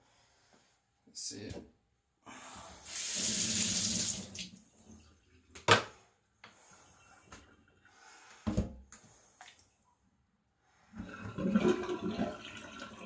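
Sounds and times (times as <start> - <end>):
kitchen tap running: 2.8 - 4.6.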